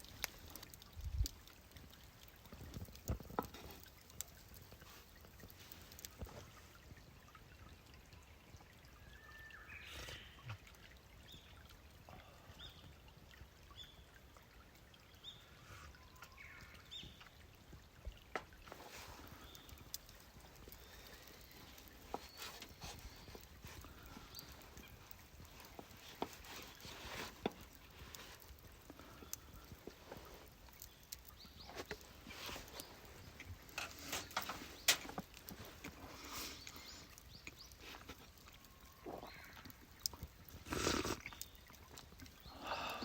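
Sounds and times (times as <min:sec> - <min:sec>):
small bird calling: 0:38.6 - 0:39.8.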